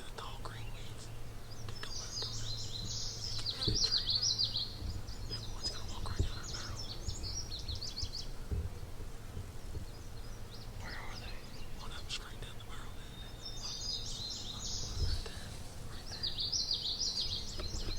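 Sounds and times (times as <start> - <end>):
songbird twittering: 0.0 - 17.9
soft low thumps: 2.7 - 11.6.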